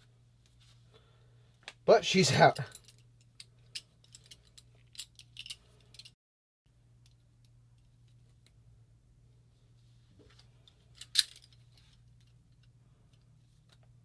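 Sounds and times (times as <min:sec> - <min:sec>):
low steady hum: 0:00.0 - 0:14.0
small parts clicking and tapping: 0:02.6 - 0:06.2.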